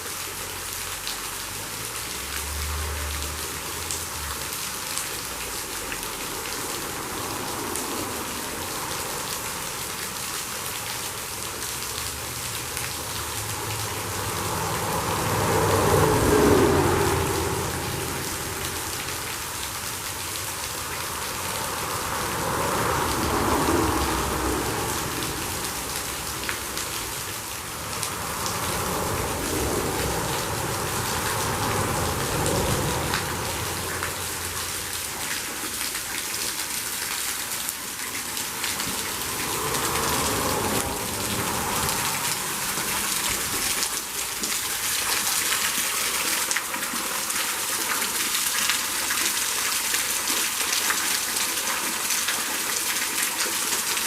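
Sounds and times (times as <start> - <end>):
waterfall rushing and splashing: 0.0 - 54.0.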